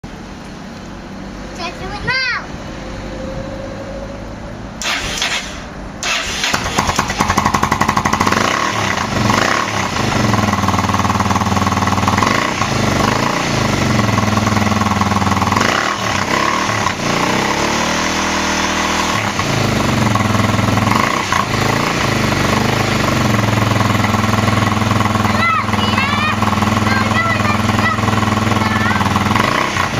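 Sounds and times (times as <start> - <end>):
motorcycle engine revving: 2.5 - 29.9
engine cranking: 4.8 - 10.7.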